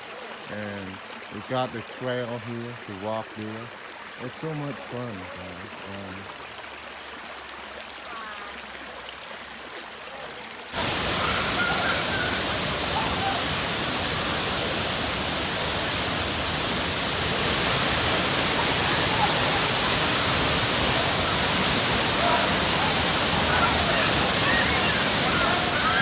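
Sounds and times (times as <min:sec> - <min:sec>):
running water rushing: 0:00.0 - 0:26.0
waterfall rushing: 0:10.8 - 0:26.0.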